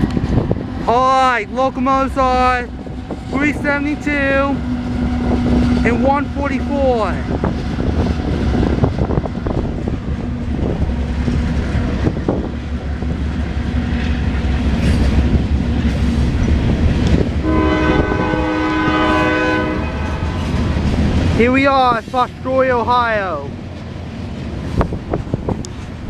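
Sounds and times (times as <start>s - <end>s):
diesel locomotive engines: 0.0s - 26.0s
train cars rumbling on rails: 0.0s - 26.0s
locomotive air horn: 17.4s - 20.5s.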